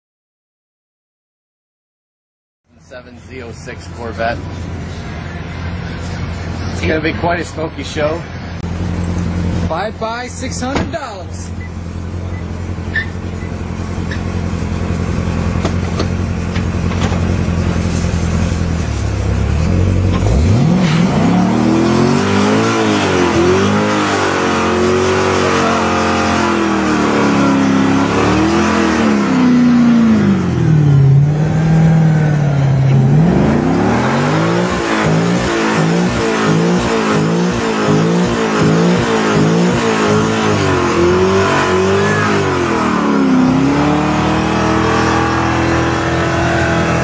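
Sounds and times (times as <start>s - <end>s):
sports car engine revving: 2.8s - 47.0s.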